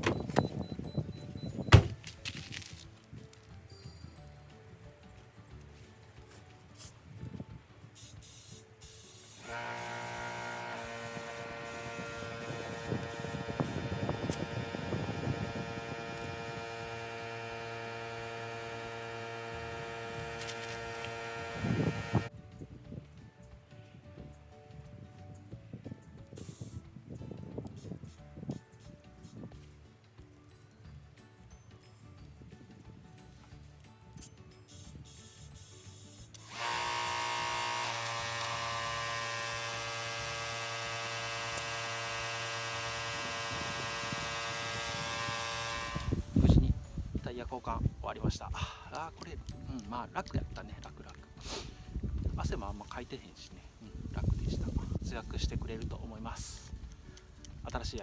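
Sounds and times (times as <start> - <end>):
air compressor motor humming: 0.0 - 2.2, 8.2 - 22.3, 34.7 - 46.6
low thump: 1.6 - 2.0
knocking and handling noise: 1.7 - 2.9.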